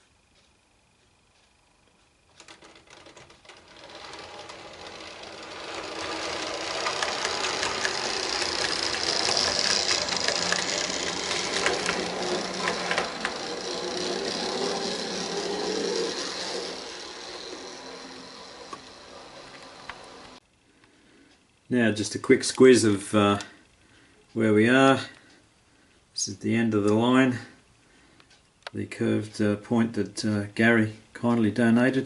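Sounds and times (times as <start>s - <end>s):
model train wheels clicking on rails: 0.0s - 20.4s
small electric motor whirring: 2.4s - 20.4s.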